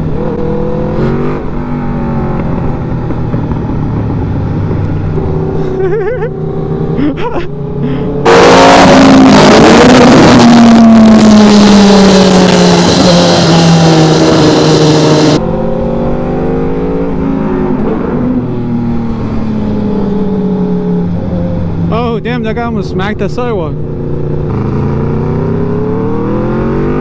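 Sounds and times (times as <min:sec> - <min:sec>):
motorcycle engine running: 0:00.0 - 0:07.1, 0:08.6 - 0:15.5, 0:19.0 - 0:26.8
loud rushing noise: 0:08.0 - 0:15.6.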